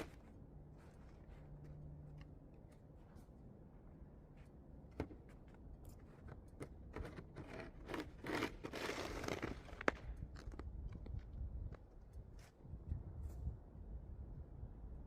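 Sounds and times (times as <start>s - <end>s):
snow crunching and scraping: 0.0s - 1.7s, 7.0s - 10.8s.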